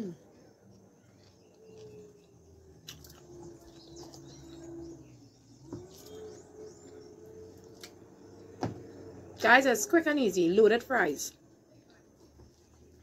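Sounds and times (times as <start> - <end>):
person chewing: 0.2 - 4.9, 5.8 - 8.5.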